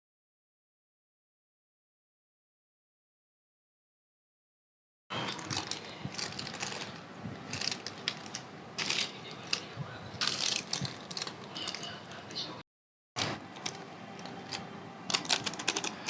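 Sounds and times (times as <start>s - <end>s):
snack packets crinkling: 5.2s - 12.4s, 13.2s - 16.0s.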